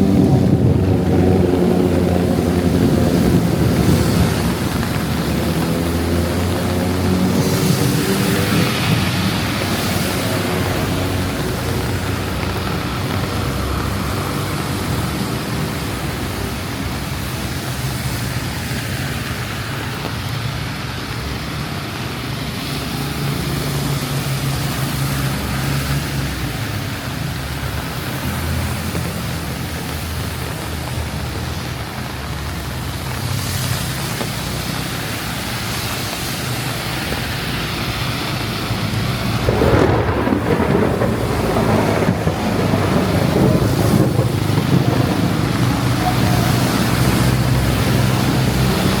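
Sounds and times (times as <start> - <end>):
heavy rain falling: 0.0 - 49.0
traffic on wet roads: 0.0 - 49.0.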